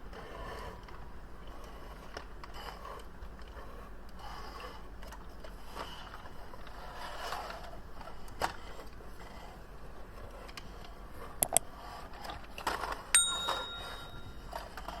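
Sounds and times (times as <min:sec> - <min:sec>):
sharp clicks: 0:11.4 - 0:11.6
metallic bell-like ring: 0:13.2 - 0:14.6.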